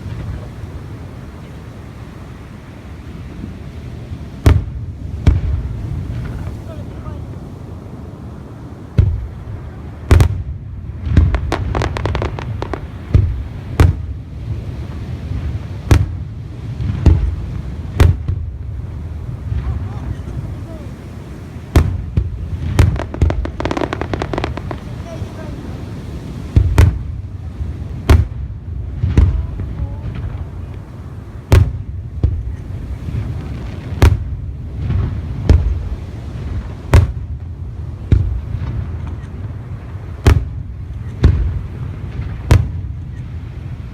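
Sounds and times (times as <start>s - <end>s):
fireworks bangs: 0.0s - 43.9s
low rumbling echo: 0.0s - 43.9s
crackling pops: 11.1s - 14.1s, 15.9s - 16.2s, 21.7s - 25.2s, 33.4s - 34.3s, 36.8s - 37.5s
fireworks shells bursting: 11.1s - 14.1s, 21.7s - 25.1s.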